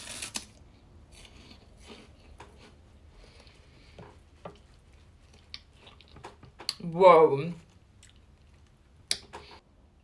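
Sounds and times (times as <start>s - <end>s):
faint crunchy chewing: 1.1s - 6.8s, 7.6s - 8.8s.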